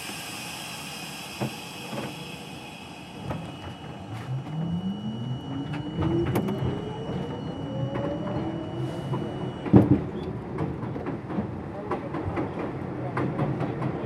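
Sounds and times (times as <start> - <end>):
steady high tone: 0.0 - 10.4
subway traction motors whining: 0.0 - 14.0.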